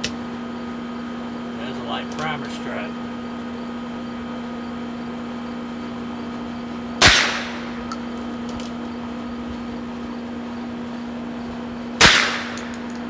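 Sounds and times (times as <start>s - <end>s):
revolver gunshot with echo: 7.0s - 7.8s, 12.0s - 12.9s.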